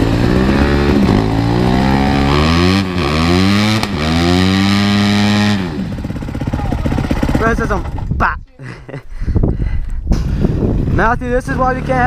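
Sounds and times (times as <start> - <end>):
dirt bike engine revving: 0.0 - 8.2
rear tire spinning: 0.0 - 8.2.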